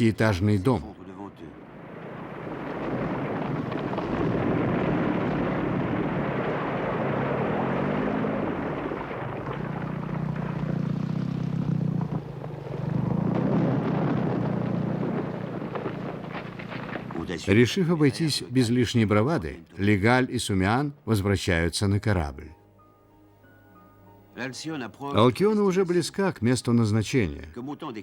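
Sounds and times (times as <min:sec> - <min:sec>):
low droning tone: 0:01.6 - 0:17.1
glacier ice collapsing into sea: 0:01.6 - 0:18.3.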